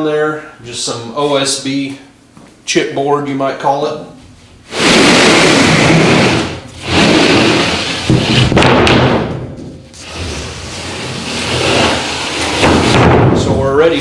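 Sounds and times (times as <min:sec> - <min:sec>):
board scraping across wood: 0:04.7 - 0:08.6, 0:10.0 - 0:13.1
sharp knocks: 0:08.0 - 0:09.8, 0:12.5 - 0:13.6.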